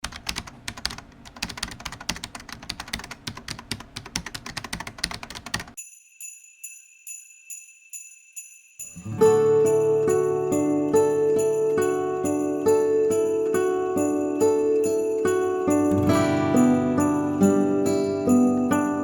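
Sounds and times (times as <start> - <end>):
rapid keyboard-like clicking: 0.0 - 5.8
high bell-like ringing tones: 5.8 - 19.0.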